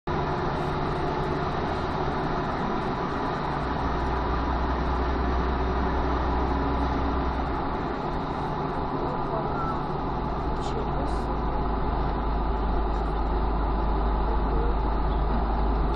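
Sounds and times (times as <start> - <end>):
road noise: 0.0 - 15.9
car engine hum: 0.1 - 15.9.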